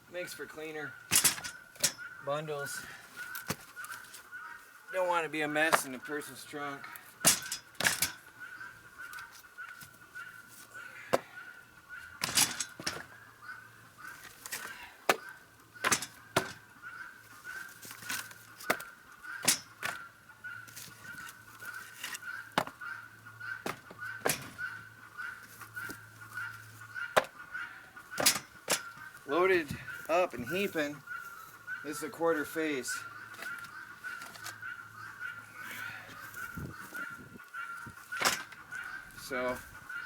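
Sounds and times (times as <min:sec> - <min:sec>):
firewood knocking together: 0:14.2 - 0:16.6, 0:22.0 - 0:22.8, 0:23.6 - 0:24.6.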